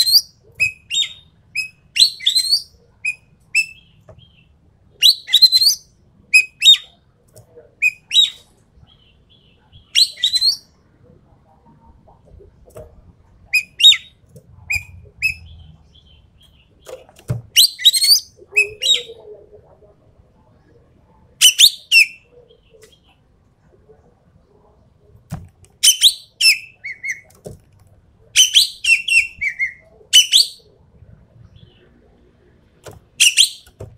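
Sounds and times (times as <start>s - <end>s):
bird whistled calls: 0.0s - 3.8s, 9.9s - 10.7s, 28.4s - 30.6s, 33.2s - 33.7s.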